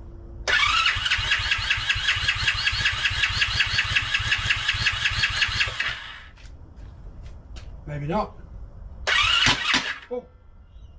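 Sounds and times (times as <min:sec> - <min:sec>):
motorcycle starter cranking: 0:00.5 - 0:06.3, 0:09.1 - 0:10.1.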